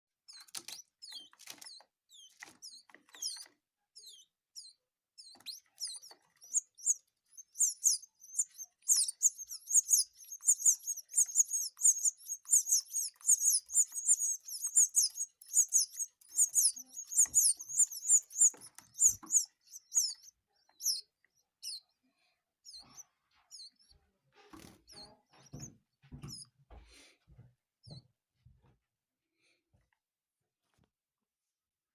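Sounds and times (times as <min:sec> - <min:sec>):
nestlings cheeping: 0:00.3 - 0:21.9
soft knocks and rustles: 0:24.3 - 0:28.8.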